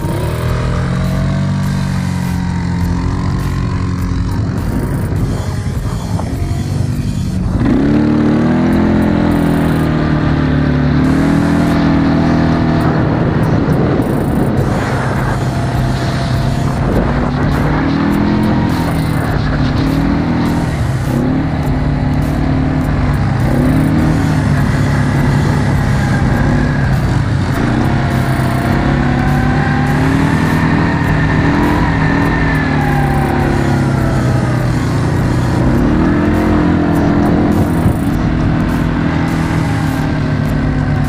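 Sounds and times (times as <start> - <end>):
quad bike engine revving: 0.0 - 41.0.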